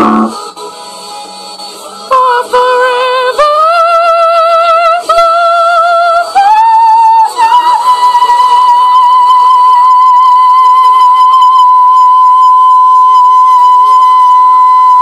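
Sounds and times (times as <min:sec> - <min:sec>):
high voice singing wordless notes: 0:00.0 - 0:00.4.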